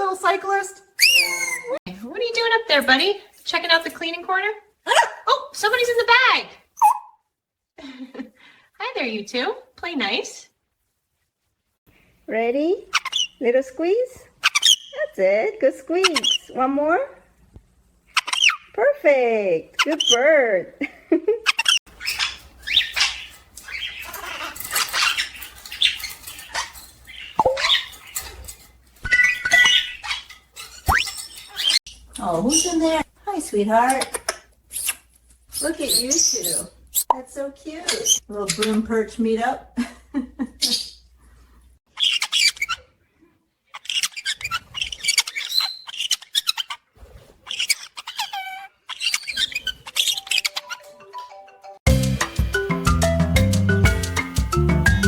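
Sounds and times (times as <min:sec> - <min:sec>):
parrots chirping and squawking: 0:01.0 - 0:01.8, 0:06.7 - 0:07.2, 0:12.9 - 0:13.4, 0:14.4 - 0:15.0, 0:15.9 - 0:16.7, 0:18.0 - 0:18.8, 0:19.7 - 0:20.3, 0:21.4 - 0:33.1, 0:33.7 - 0:39.0, 0:40.6 - 0:41.2, 0:41.9 - 0:51.5
whistled note: 0:01.0 - 0:01.8.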